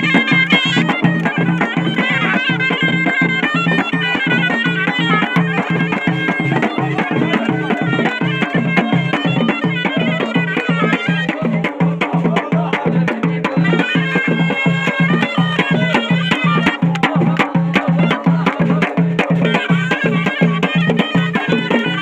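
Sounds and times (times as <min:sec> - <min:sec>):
double-reed shawm melody: 0:00.0 - 0:22.0.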